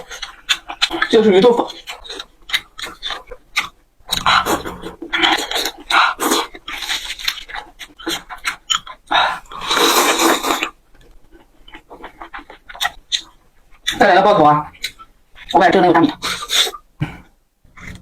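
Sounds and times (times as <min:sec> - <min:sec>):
soft wet chewing clicks: 0:00.0 - 0:09.6, 0:10.5 - 0:16.9
chewing: 0:00.0 - 0:16.8, 0:17.6 - 0:18.0
loud breathy slurping: 0:04.1 - 0:07.3, 0:09.1 - 0:10.7.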